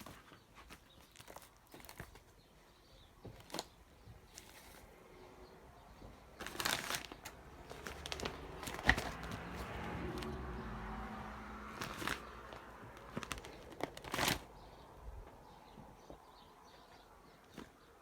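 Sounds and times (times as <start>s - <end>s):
rustling and scraping: 0.0s - 5.0s, 5.9s - 10.4s, 11.7s - 14.8s.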